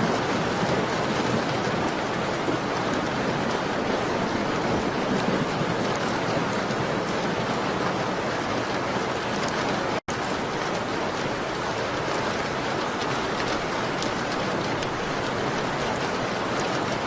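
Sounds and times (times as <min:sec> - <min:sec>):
rain on a window: 0:00.0 - 0:17.0.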